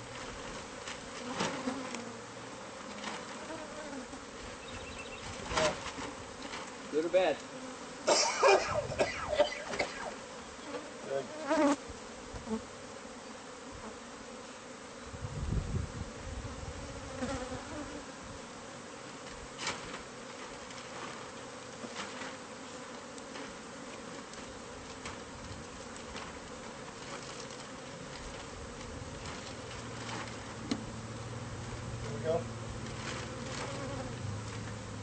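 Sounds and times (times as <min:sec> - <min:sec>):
honeybees buzzing: 0:00.0 - 0:35.0.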